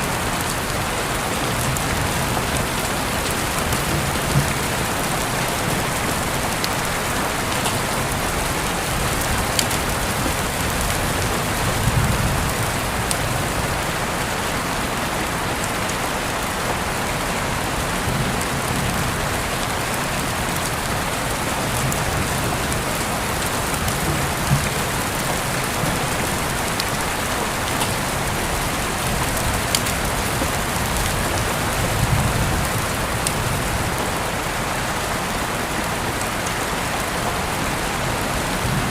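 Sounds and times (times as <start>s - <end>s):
rain pattering on surfaces: 0.0s - 38.9s
raindrop ticks: 0.1s - 13.8s, 19.6s - 34.2s.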